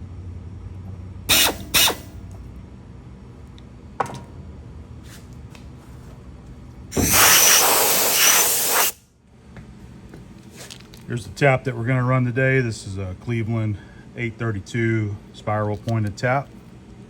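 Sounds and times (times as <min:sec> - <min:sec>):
compressed air blasts: 0:01.3 - 0:02.3, 0:06.9 - 0:09.0.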